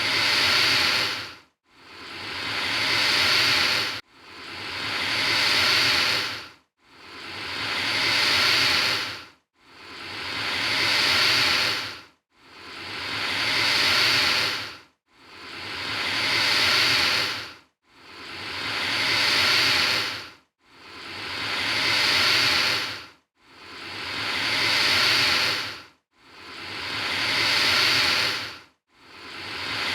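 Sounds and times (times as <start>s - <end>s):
alligator hissing: 0.0s - 1.3s, 1.9s - 4.0s, 4.8s - 6.4s, 7.7s - 9.2s, 9.8s - 12.0s, 12.8s - 14.7s, 15.4s - 17.4s, 18.2s - 20.2s, 20.9s - 23.0s, 23.7s - 25.8s, 26.4s - 28.5s, 29.2s - 29.9s.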